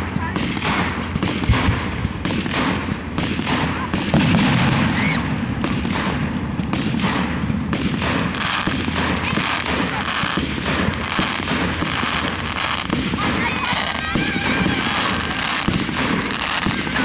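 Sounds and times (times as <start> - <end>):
fireworks bursting and crackling: 0.0 - 17.0
rising firework whistle: 4.5 - 5.3, 11.2 - 17.0.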